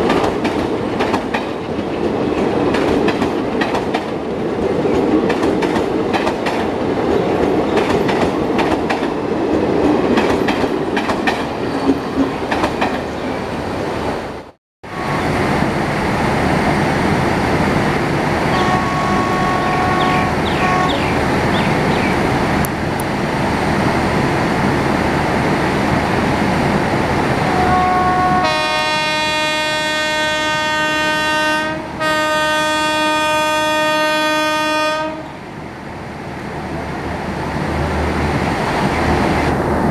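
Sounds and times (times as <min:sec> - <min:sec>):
train wheels clattering over rail joints: 0:09.9 - 0:13.0
locomotive horn blasts: 0:14.8 - 0:15.4, 0:18.5 - 0:21.1, 0:27.5 - 0:35.4.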